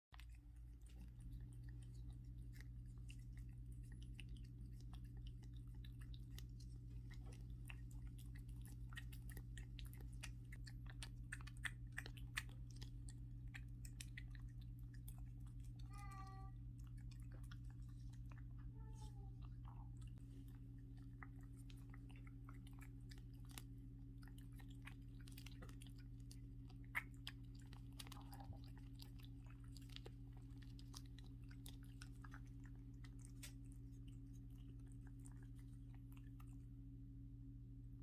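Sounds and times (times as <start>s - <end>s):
cat licking wetly: 0.1s - 36.8s
low hum: 0.1s - 38.0s
cat mewing: 15.8s - 16.6s.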